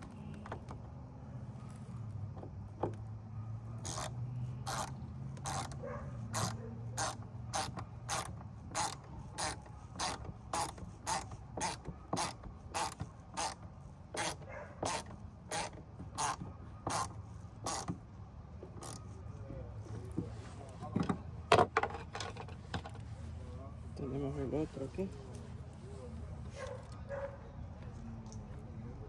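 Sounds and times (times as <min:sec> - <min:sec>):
hand ratchet clicking: 0:03.8 - 0:13.6, 0:14.2 - 0:18.0.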